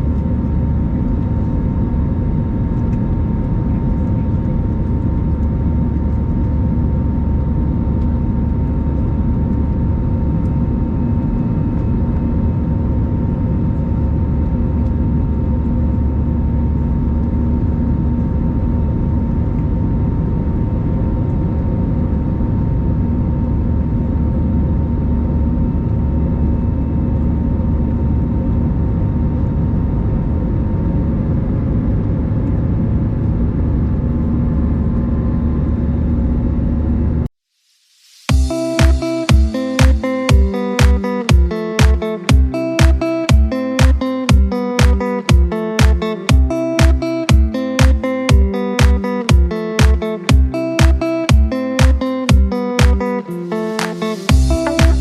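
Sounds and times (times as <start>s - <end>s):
aircraft cabin engine drone: 0.0s - 37.2s
steady tones: 38.3s - 55.0s.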